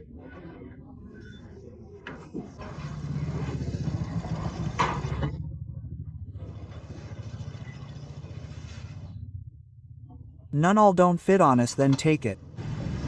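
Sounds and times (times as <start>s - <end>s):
vehicle engine running: 2.2s - 10.6s, 11.7s - 13.0s.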